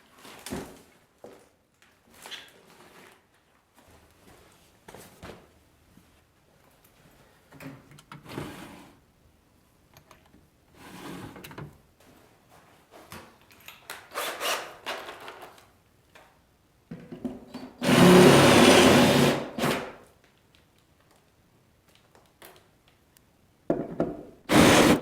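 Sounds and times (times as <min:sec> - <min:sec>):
hand-held power tool running: 0:17.8 - 0:19.8, 0:24.5 - 0:25.0.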